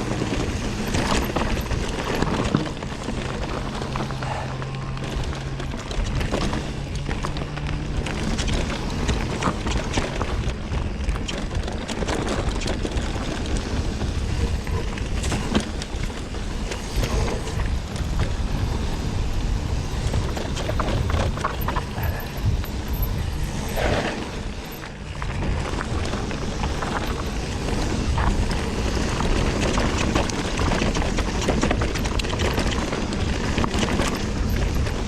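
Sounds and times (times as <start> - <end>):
bike rattling: 0.0 - 35.0
bike tyres crunching over stones: 0.0 - 35.0.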